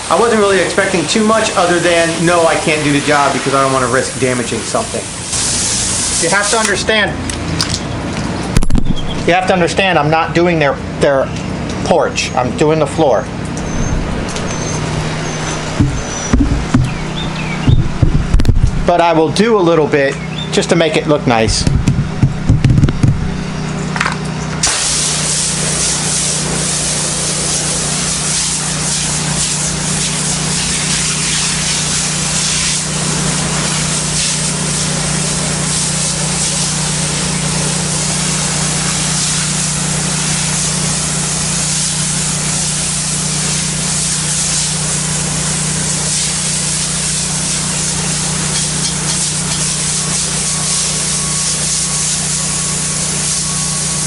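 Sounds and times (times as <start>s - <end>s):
water spray hissing on tile: 0.0s - 6.9s, 13.6s - 18.8s, 24.6s - 54.0s
pressure washer humming: 0.0s - 54.0s.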